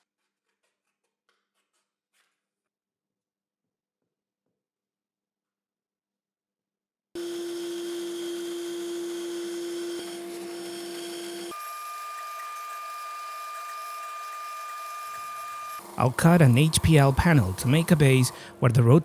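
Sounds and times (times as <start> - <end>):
electric power tool motor: 7.2 - 19.0.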